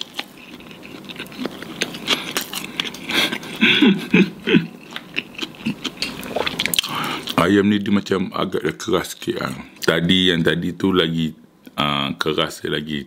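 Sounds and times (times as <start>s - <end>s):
person chewing food: 0.0s - 7.4s.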